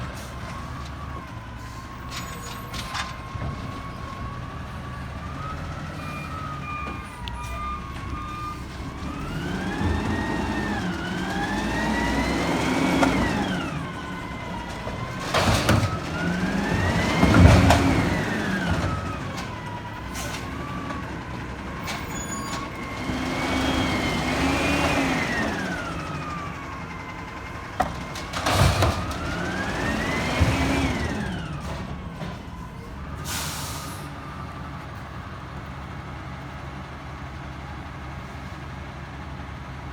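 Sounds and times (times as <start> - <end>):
truck diesel engine revving: 3.3 - 36.7
sharp clunks and bangs: 27.8 - 32.5.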